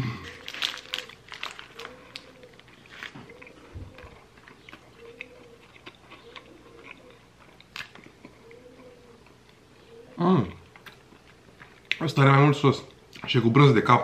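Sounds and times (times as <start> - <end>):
person chewing crunchy food: 0.0 - 9.7, 10.6 - 12.0.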